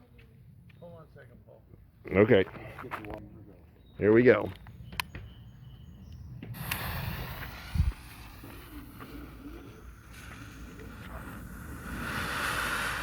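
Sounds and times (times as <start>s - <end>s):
faint outdoor rumble: 0.0s - 13.0s
firework hissing: 6.5s - 13.0s.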